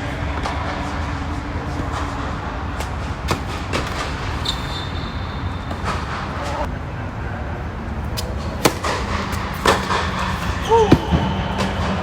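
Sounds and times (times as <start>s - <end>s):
tennis balls struck and bounced: 1.7s - 4.7s, 8.1s - 12.0s.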